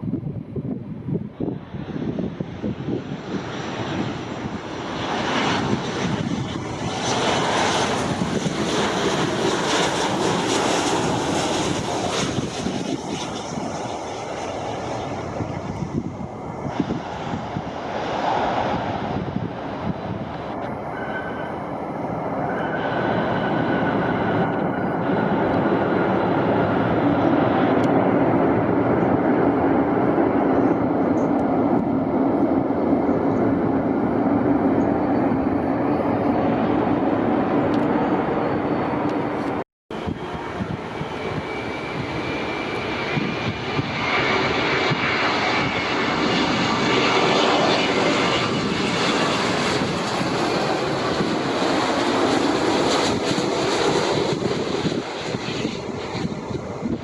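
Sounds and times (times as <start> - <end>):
airliner engines running: 0.0 - 57.0.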